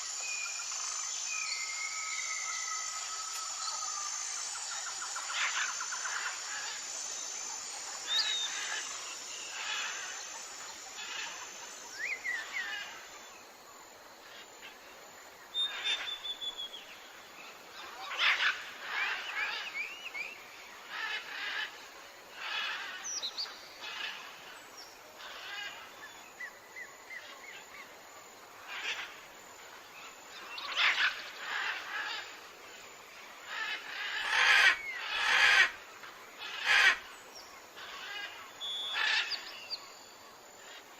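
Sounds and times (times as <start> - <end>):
birds chirping and trilling: 0.0 - 13.1, 15.6 - 27.9, 28.6 - 29.3, 29.9 - 40.9.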